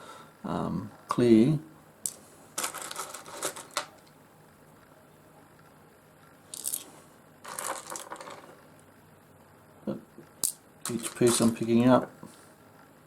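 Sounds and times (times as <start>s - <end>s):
stones clinking and rattling: 2.1s - 4.1s, 6.5s - 8.6s, 10.4s - 11.7s.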